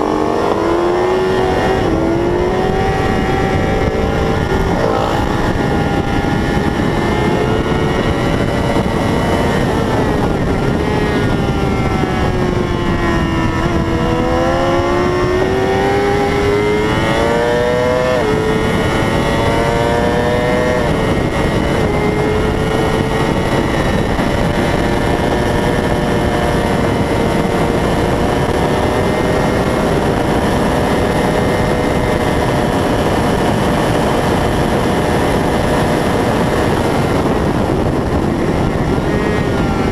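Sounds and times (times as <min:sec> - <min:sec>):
loud rushing noise: 0:00.0 - 0:27.5
racing motorcycle engine: 0:00.0 - 0:39.9.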